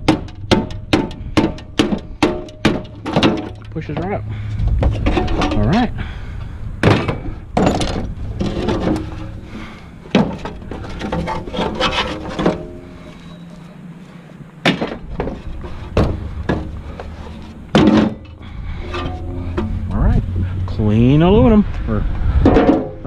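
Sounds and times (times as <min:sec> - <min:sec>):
scrap metal clanking: 0:00.0 - 0:13.8, 0:14.6 - 0:20.6, 0:22.4 - 0:23.0
metal scraping and rubbing: 0:04.5 - 0:06.0, 0:07.1 - 0:13.8, 0:14.9 - 0:23.0.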